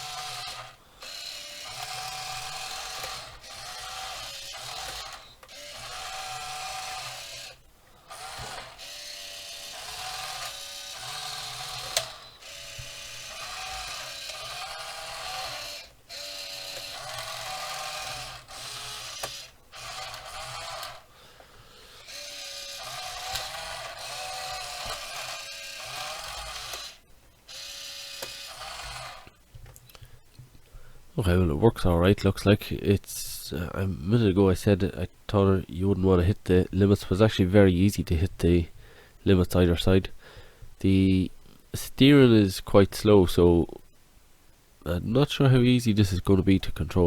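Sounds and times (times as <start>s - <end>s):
small electric motors whining: 0.0s - 21.1s, 21.8s - 29.3s.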